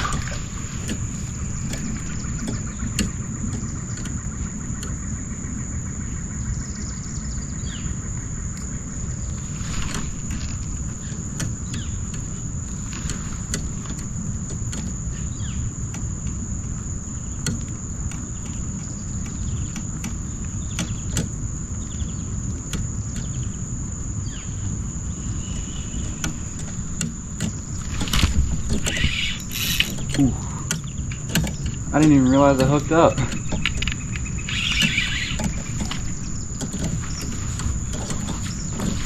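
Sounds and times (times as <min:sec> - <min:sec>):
sharp clicks: 0:00.0 - 0:05.2, 0:09.8 - 0:23.6, 0:24.5 - 0:39.0
handling noise: 0:00.0 - 0:05.4, 0:08.6 - 0:39.0
high insect drone: 0:00.0 - 0:39.0
low outdoor rumble: 0:00.0 - 0:39.0.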